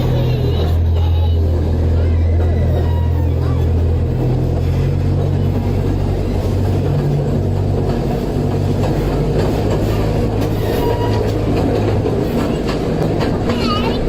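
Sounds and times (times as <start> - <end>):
cars rattling on track: 0.0 - 14.0.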